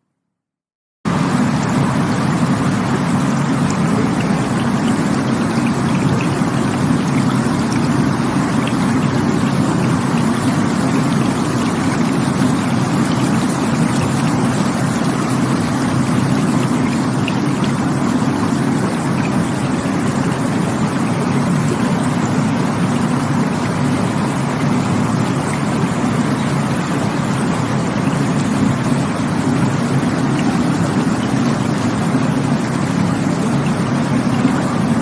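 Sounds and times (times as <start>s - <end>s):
water rushing with small splashes: 1.1s - 35.0s.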